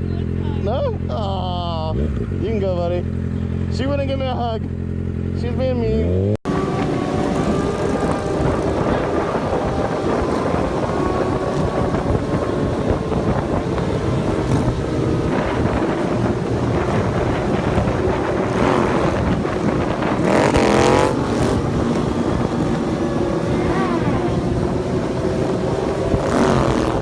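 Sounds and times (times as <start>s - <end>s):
motorcycle engine running: 0.0s - 27.0s
wind buffeting microphone: 6.4s - 27.0s.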